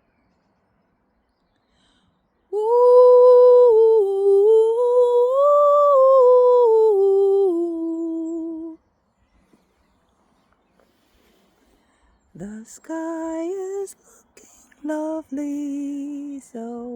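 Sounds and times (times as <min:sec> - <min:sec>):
person humming a long tone: 0:02.5 - 0:08.8.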